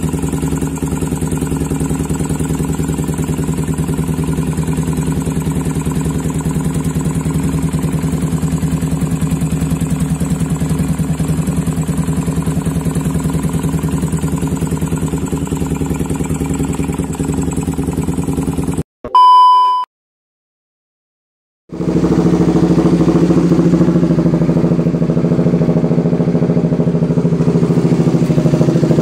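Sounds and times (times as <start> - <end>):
motorcycle engine idling: 0.0 - 18.8, 21.7 - 29.0
electronic beep: 19.1 - 19.9.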